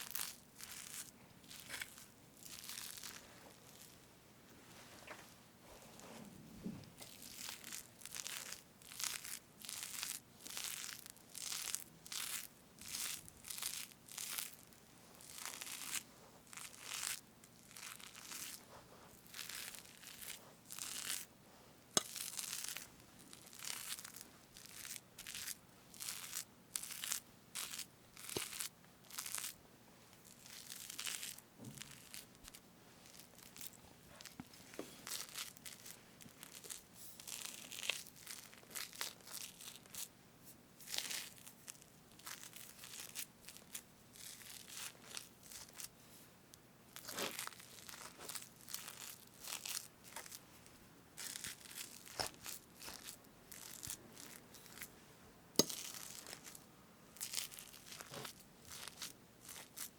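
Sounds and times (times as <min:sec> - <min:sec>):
knife cutting whipped cream cake: 0:22.0 - 0:22.8, 0:55.6 - 0:56.5.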